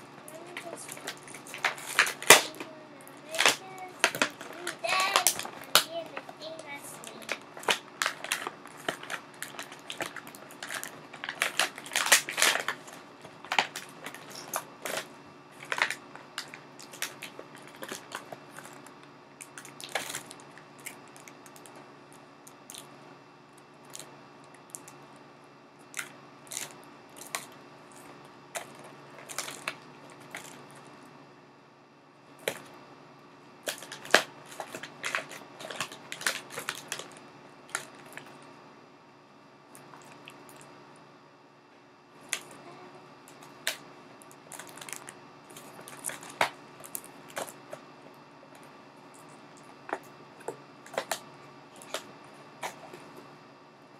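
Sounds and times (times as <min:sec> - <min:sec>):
plastic packaging crinkling: 0:00.2 - 0:21.8, 0:25.9 - 0:30.9, 0:33.6 - 0:38.4, 0:43.3 - 0:47.8, 0:49.2 - 0:53.2.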